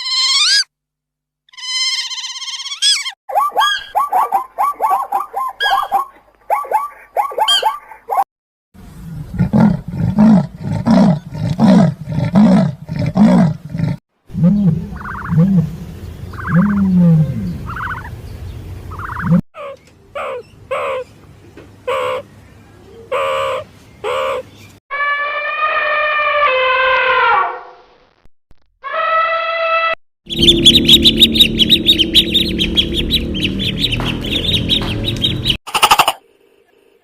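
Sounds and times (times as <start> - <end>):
rapid bird chirping: 14.4 - 21.2, 30.3 - 36.2.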